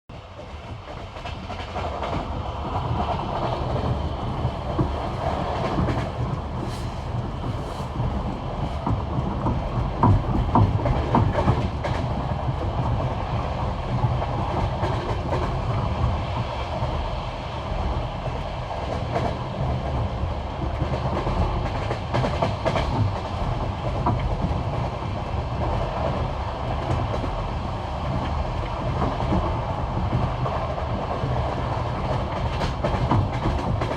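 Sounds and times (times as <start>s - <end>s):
train wheels clattering over rail joints: 0.4s - 13.0s, 20.6s - 33.9s.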